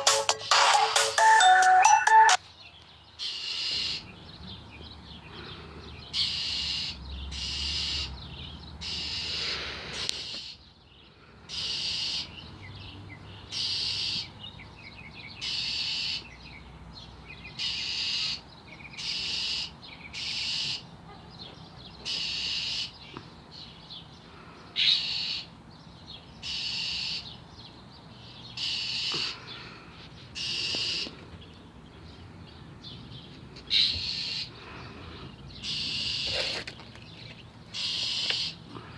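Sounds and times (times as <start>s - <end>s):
bird harsh scolding calls: 3.1s - 4.3s, 5.4s - 10.6s, 11.5s - 12.5s, 13.4s - 14.4s, 15.4s - 16.4s, 17.5s - 23.1s, 24.6s - 25.6s, 26.3s - 27.5s, 28.3s - 31.3s, 33.6s - 38.9s.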